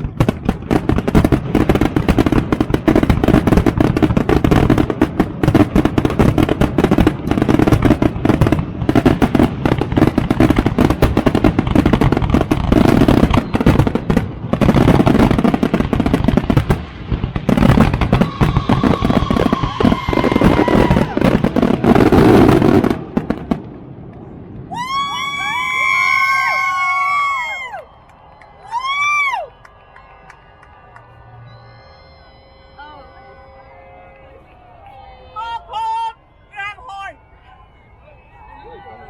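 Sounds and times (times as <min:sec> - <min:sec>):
fireworks bangs and crackling: 0:00.0 - 0:34.4
faint whistling tone: 0:27.9 - 0:36.5, 0:37.2 - 0:39.0.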